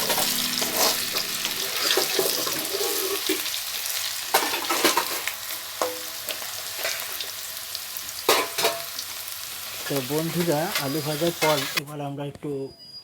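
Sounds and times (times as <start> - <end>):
food sizzling in hot oil: 0.0 - 11.8
utensil clanking against pan: 8.3 - 8.9.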